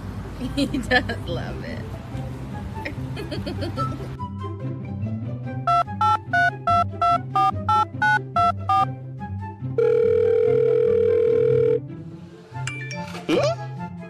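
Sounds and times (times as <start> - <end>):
background music: 0.6 - 14.0
telephone keypad beeps: 5.7 - 8.9.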